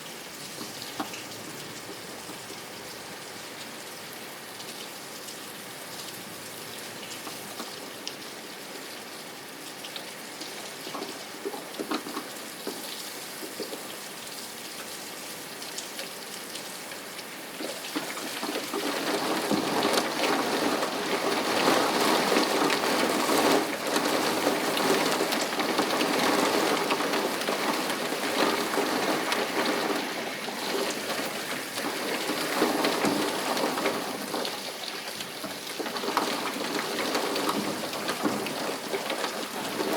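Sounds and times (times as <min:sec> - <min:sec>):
rain falling: 0:00.0 - 0:39.9
raindrops ticking: 0:09.7 - 0:39.9.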